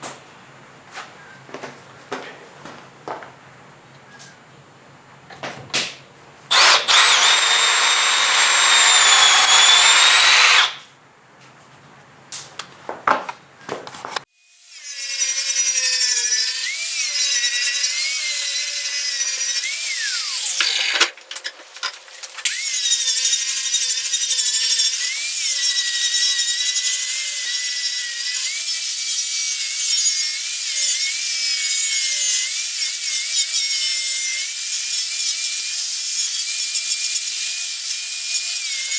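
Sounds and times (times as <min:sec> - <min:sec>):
power drill drilling wood: 0:06.5 - 0:10.8, 0:14.5 - 0:21.1, 0:22.4 - 0:38.9.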